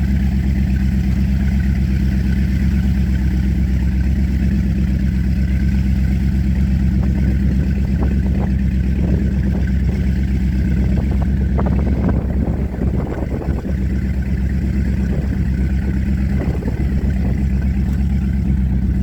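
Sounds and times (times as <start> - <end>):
powerboat engine running: 0.0 - 19.0.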